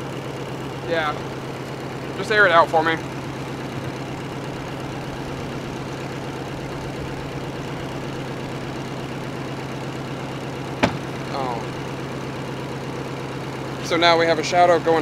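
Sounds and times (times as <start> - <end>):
car engine idling: 0.0 - 15.0
car door shutting: 10.8 - 11.2.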